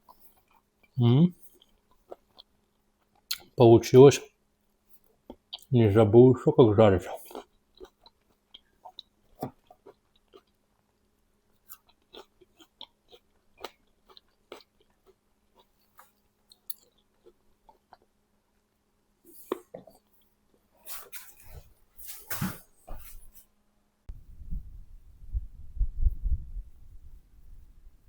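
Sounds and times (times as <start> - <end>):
person chewing: 0.0 - 3.6, 4.9 - 5.7, 7.1 - 18.2, 19.3 - 20.2
faint steady hum: 0.0 - 28.0.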